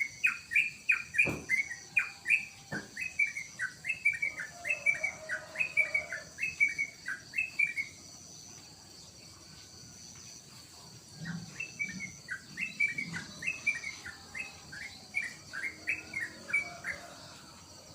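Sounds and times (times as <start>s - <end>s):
bird singing bubbly phrases: 11.2s - 16.6s.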